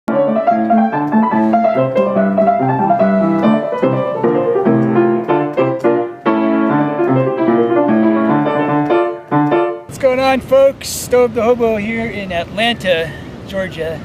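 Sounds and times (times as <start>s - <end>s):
piano music: 0.1s - 10.0s.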